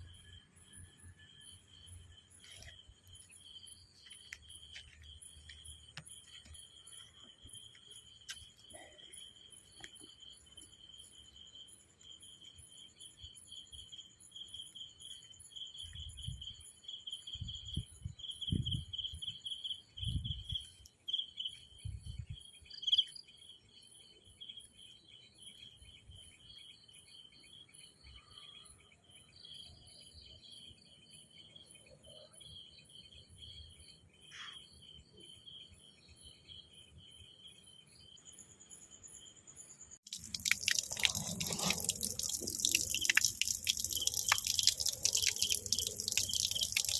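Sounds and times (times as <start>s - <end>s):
insects trilling: 31.4s - 46.9s.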